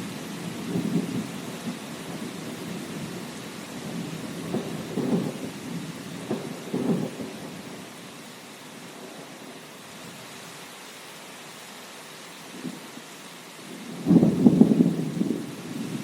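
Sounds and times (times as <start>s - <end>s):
steady rain: 0.0s - 16.0s
thunder rumbling: 3.8s - 7.8s, 13.9s - 16.0s.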